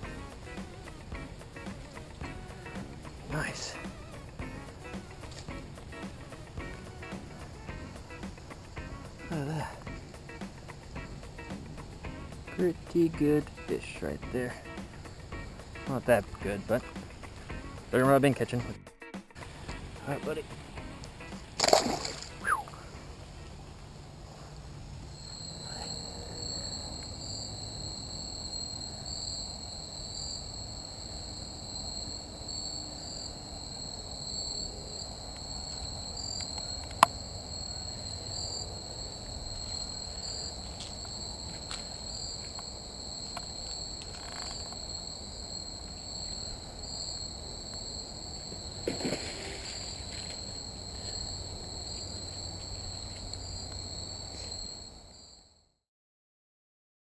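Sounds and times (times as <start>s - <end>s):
pulsing chorus of insects: 0.0s - 18.8s, 19.4s - 55.6s.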